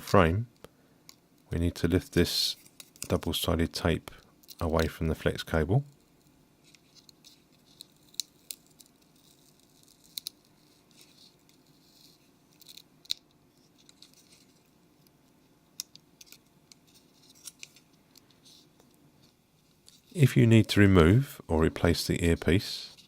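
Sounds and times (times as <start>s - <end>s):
soft scratching: 4.6s - 12.8s
faint clicks of phone parts: 10.0s - 20.1s.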